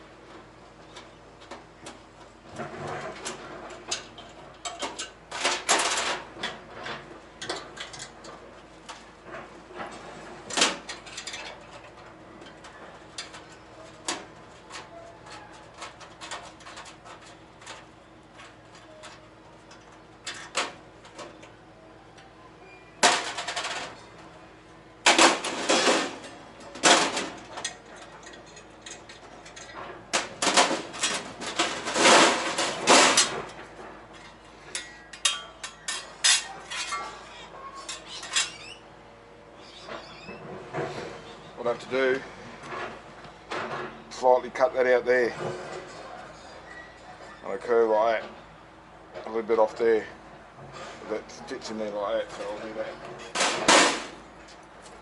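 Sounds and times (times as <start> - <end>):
metal parts and tools clanking: 2.6 - 8.4, 9.3 - 21.5, 23.0 - 24.1, 25.0 - 38.8.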